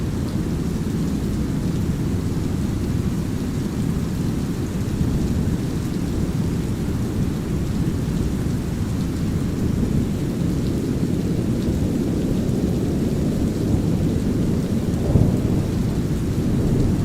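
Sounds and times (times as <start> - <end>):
light drizzling rain: 0.0 - 17.0.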